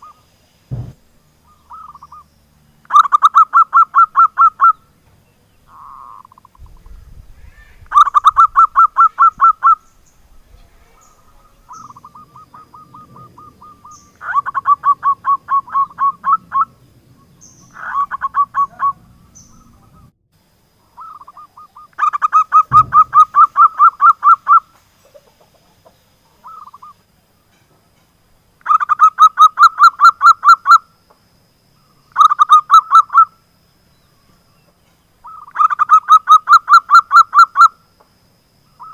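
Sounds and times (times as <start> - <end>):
low thump: 0.7 - 1.1, 22.7 - 23.5
dove cooing in pulsed notes: 1.2 - 4.8, 5.6 - 7.0, 7.8 - 20.1, 20.8 - 27.0.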